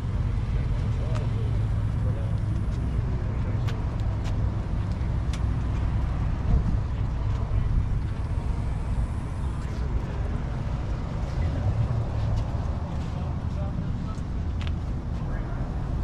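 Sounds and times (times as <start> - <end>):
car engine exhaust rumble: 0.0 - 16.0
crowd voices: 0.0 - 16.0.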